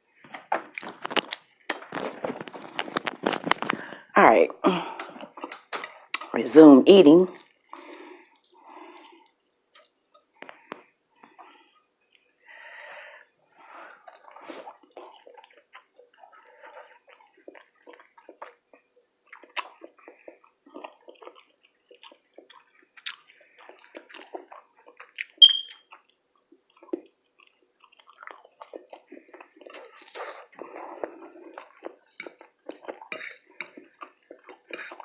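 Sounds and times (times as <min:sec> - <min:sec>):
wet chewing and mouth smacks: 0:00.6 - 0:03.8, 0:05.0 - 0:06.3, 0:07.3 - 0:12.5, 0:13.2 - 0:35.0
cutlery clinking against dish: 0:33.0 - 0:33.4, 0:34.7 - 0:35.0.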